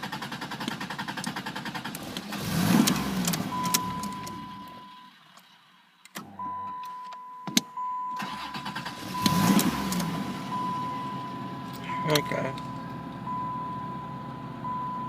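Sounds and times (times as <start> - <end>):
starter cranking engine: 0.0 - 4.6, 8.2 - 10.6.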